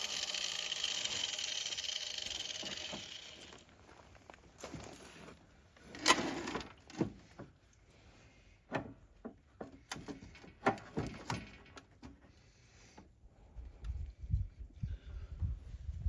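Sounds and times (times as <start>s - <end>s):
scraping rattle: 0.0s - 3.6s.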